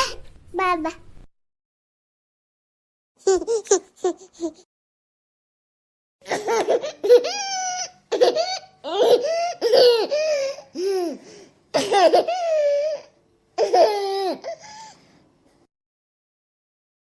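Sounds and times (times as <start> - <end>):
baby laughing: 3.2 - 4.7, 6.2 - 14.8.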